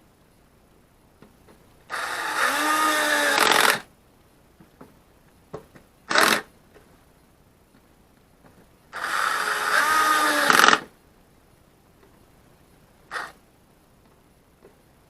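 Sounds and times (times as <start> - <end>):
small electric motor running: 1.9 - 3.8, 9.0 - 10.8, 13.1 - 13.4.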